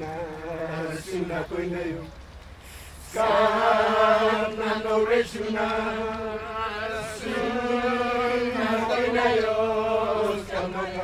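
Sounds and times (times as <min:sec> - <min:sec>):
voices chanting held notes: 0:03.1 - 0:11.0.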